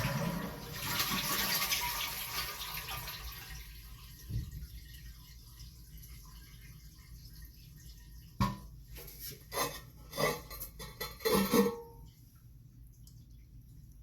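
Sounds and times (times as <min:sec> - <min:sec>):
toilet tank parts clinking: 0:08.4 - 0:12.0.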